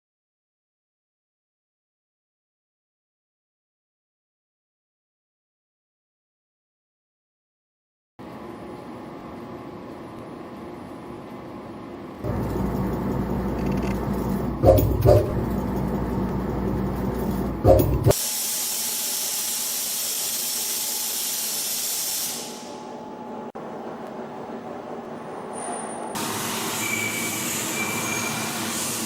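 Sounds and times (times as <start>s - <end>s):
machine motor hum: 12.2s - 18.2s
steady hiss: 18.2s - 22.9s.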